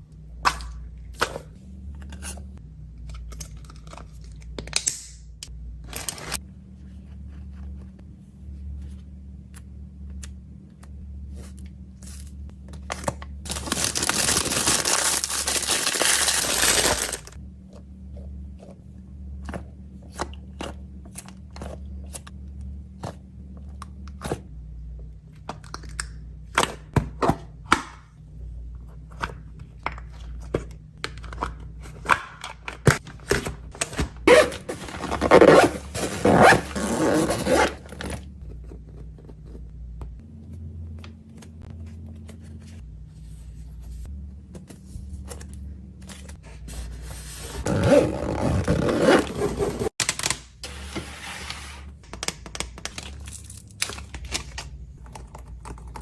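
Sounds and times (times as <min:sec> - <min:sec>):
steady low hum: 0:00.0 - 0:56.0
packaging tearing and crinkling: 0:13.5 - 0:17.4.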